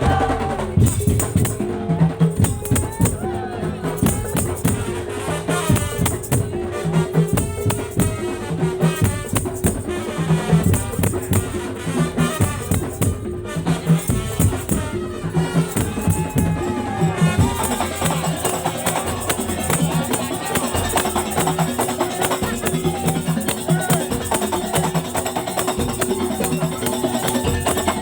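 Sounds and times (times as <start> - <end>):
jingling rattle percussion: 0.0 - 28.0
wooden slit drums and drums: 0.0 - 28.0
held melody line: 7.3 - 28.0.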